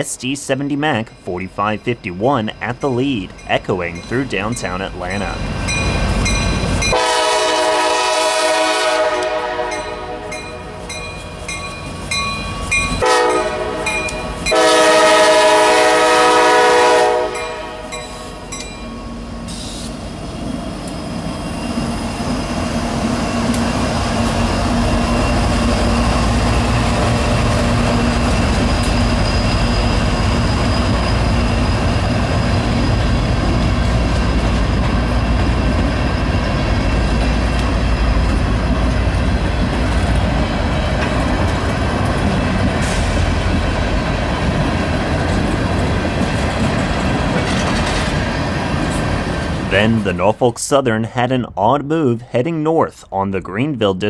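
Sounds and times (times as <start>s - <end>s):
freight train rumbling past: 0.0s - 50.3s
locomotive air horn: 6.9s - 10.8s, 13.0s - 18.0s
train cars clattering on rails: 20.8s - 49.7s.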